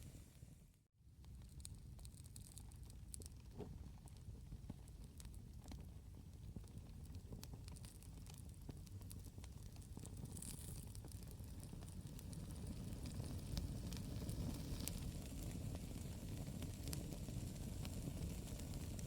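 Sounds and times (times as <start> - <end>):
campfire crackling and popping: 1.2 - 19.0
low fire rumble: 1.2 - 19.0.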